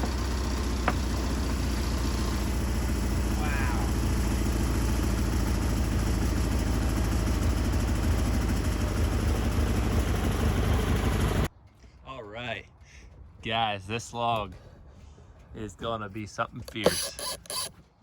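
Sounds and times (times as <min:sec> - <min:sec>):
sawmill engine running: 0:00.0 - 0:11.5, 0:16.7 - 0:17.7.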